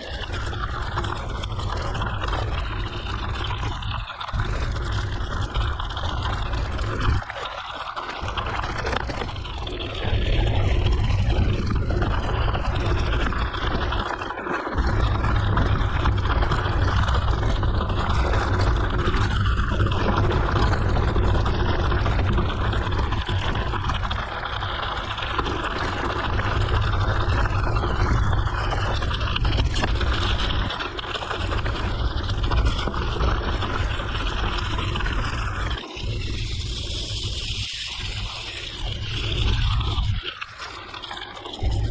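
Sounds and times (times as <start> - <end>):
bike tyre rumble: 0.0 - 41.9
wind buffeting microphone: 8.3 - 14.2.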